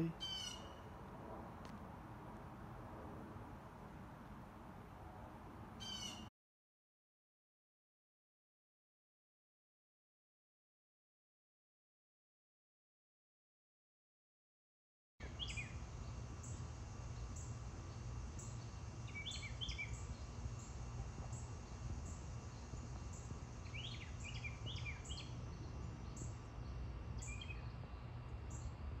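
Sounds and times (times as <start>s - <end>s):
low rumble of background noise: 0.0s - 6.3s, 15.2s - 29.0s
small bird chirping: 0.1s - 0.8s, 15.3s - 16.6s, 18.4s - 28.8s.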